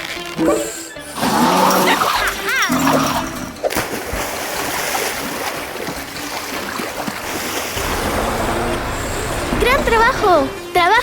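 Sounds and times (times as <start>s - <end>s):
rushing river water: 0.4s - 10.7s
low rumble: 7.8s - 10.6s.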